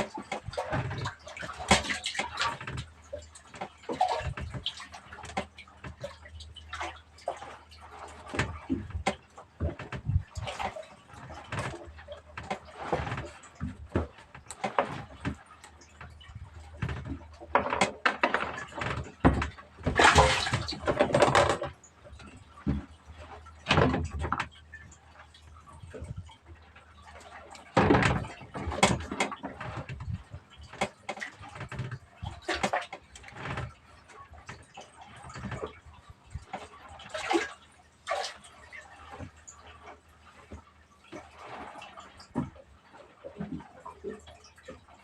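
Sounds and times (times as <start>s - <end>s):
water splashing and sloshing: 0.0s - 45.0s
knocks and clatter: 8.1s - 23.0s, 27.8s - 33.7s.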